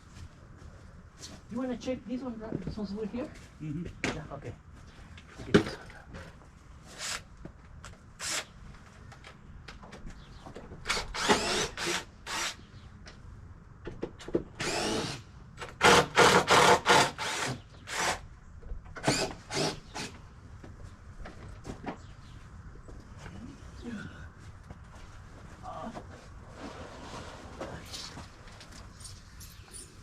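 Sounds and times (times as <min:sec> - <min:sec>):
power drill whining in bursts: 0:10.9 - 0:12.6, 0:14.6 - 0:15.2, 0:15.8 - 0:18.2, 0:19.0 - 0:20.1.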